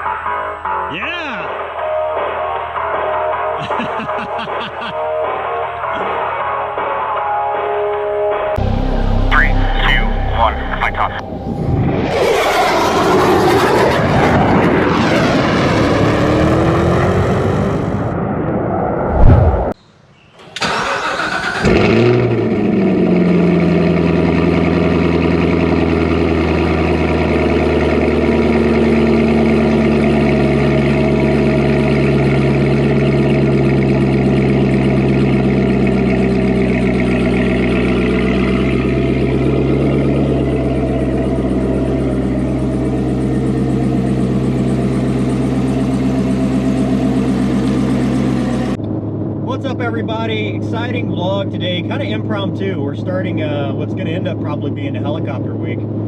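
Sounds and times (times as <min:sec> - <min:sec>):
loud noise with rising whine: 0:08.6 - 0:20.1, 0:26.6 - 0:52.5
engine starting and idling: 0:20.4 - 0:22.9.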